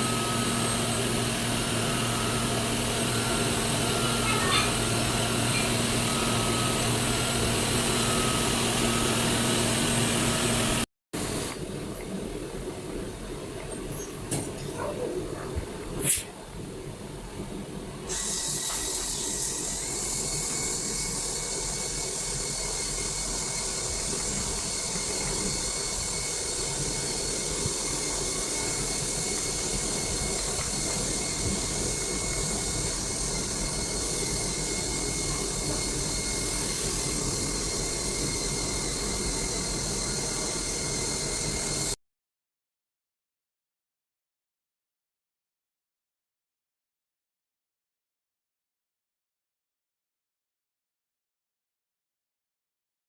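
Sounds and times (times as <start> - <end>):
high steady whine: 0.0 - 42.0
machine hissing: 18.1 - 42.0.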